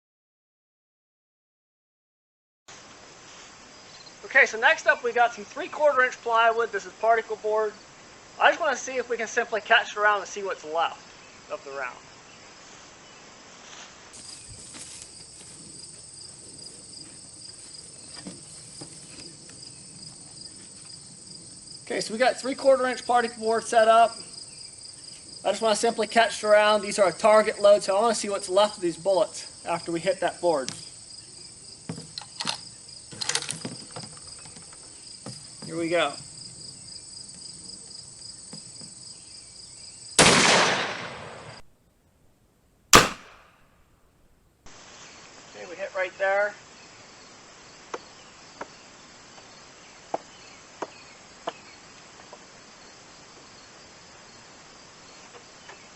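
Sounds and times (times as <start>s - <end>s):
insects chirping: 3.6s - 13.5s, 14.1s - 40.2s, 44.7s - 55.9s
rifle shot echoing: 40.2s - 41.2s, 43.0s - 43.7s.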